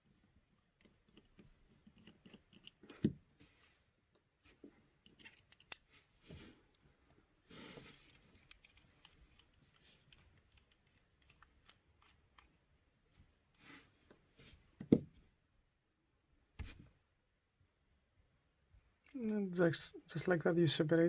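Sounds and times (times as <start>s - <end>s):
metal and plastic parts clicking: 0.8s - 3.2s, 5.0s - 5.9s, 8.1s - 12.6s.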